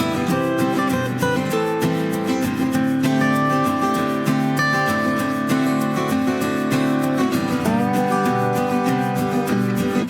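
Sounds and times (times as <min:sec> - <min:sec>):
acoustic guitar tune: 0:00.0 - 0:10.0.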